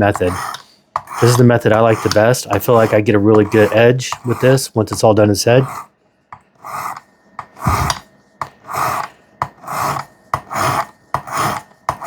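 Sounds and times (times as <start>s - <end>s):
sharpening stone rasping on knife: 0.1s - 4.6s, 8.7s - 12.0s.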